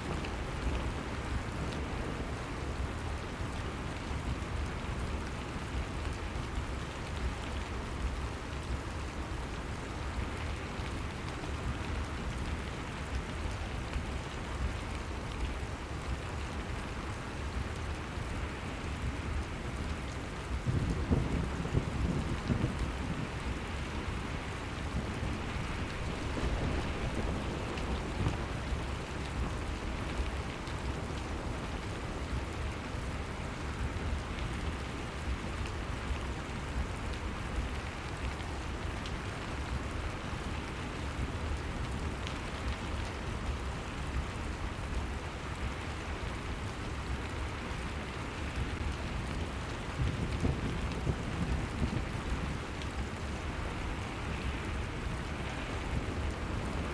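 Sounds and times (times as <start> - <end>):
steady rain falling: 0.0 - 56.9
single raindrops: 20.7 - 31.2.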